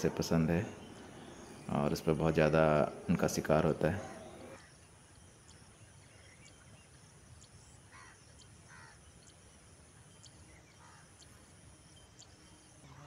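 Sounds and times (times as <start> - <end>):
faint short bird calls: 3.8 - 4.7, 7.9 - 9.0.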